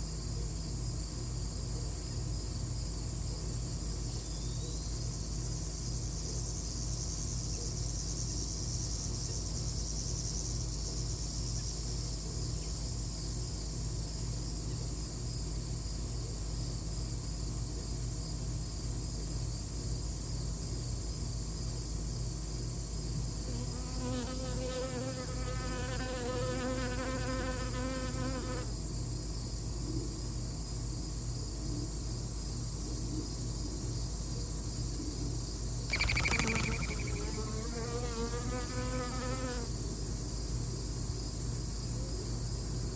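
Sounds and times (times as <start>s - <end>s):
insects chirring: 0.0s - 42.6s
insect buzzing close by: 23.4s - 28.8s, 35.9s - 39.8s.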